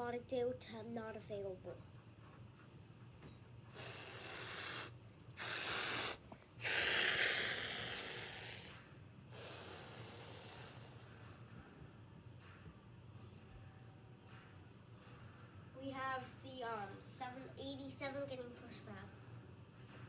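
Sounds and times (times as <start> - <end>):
breathy hissing: 3.7 - 11.1.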